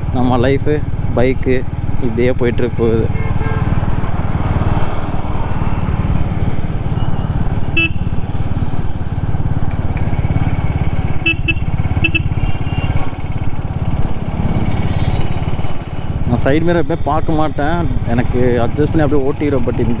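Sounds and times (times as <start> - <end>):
horn beeps: 6.8 - 8.4, 11.1 - 16.1.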